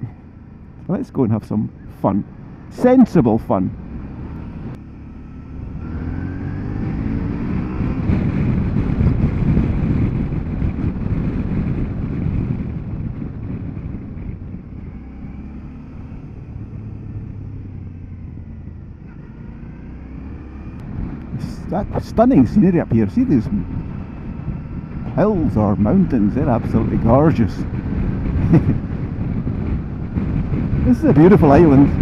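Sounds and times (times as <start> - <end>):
motorcycle engine revving: 1.7 - 32.0
wind rush: 5.6 - 15.4, 20.7 - 32.0.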